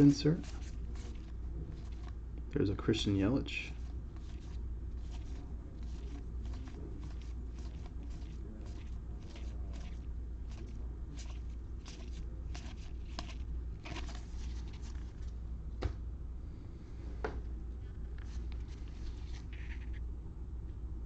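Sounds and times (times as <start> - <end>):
steady low hum: 0.0 - 21.0
trading cards flipped through: 3.8 - 15.3, 18.2 - 20.0.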